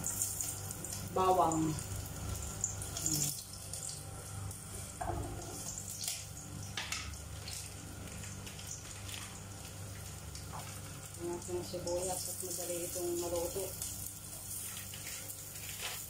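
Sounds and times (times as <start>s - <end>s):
garlic sizzling in oil: 0.0s - 16.0s
ingredients crackling in oil: 0.0s - 16.0s.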